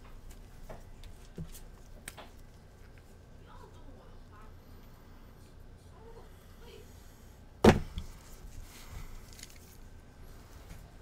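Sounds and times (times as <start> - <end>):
hard object knocking on workbench: 7.6 - 8.0
faint handling noise: 7.6 - 11.0.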